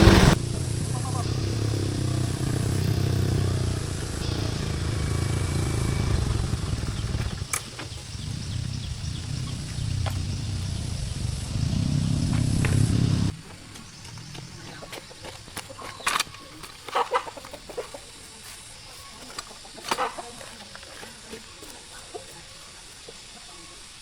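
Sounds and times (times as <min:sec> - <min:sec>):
engine running: 0:00.0 - 0:13.3.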